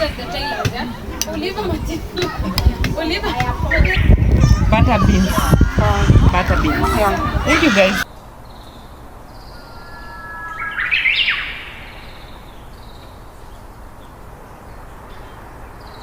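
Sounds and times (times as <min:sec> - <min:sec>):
bird whistling rising sweeps: 0:09.4 - 0:12.4.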